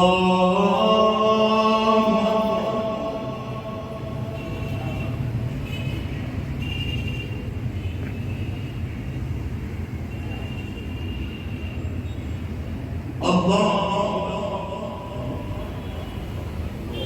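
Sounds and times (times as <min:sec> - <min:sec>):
low room noise rumble: 0:00.0 - 0:05.5, 0:12.8 - 0:17.0.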